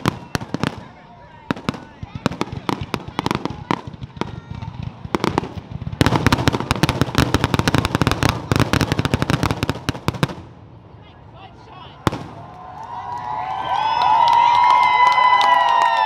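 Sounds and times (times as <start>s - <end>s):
fireworks bangs and crackles: 0.0s - 10.9s, 12.0s - 13.2s.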